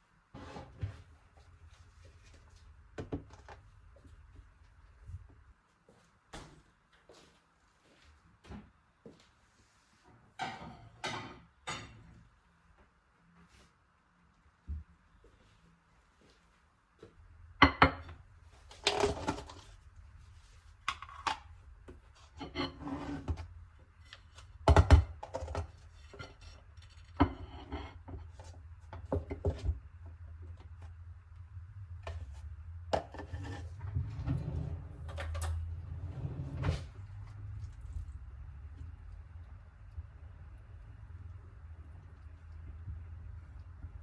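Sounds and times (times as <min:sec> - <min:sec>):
objects knocking and clattering: 0:24.2 - 0:29.9
low steady rumble: 0:28.2 - 0:44.0.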